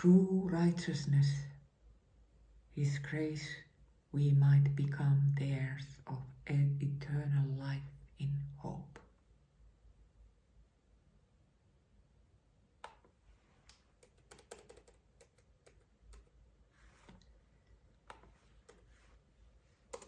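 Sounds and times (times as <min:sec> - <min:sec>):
faint clicks and taps: 0:12.8 - 0:16.4, 0:17.0 - 0:19.1
soft rustle: 0:13.2 - 0:14.0, 0:16.5 - 0:19.9.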